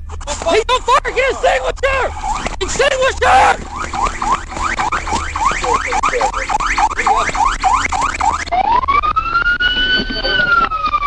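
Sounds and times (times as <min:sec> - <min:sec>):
police siren: 0:00.0 - 0:11.0.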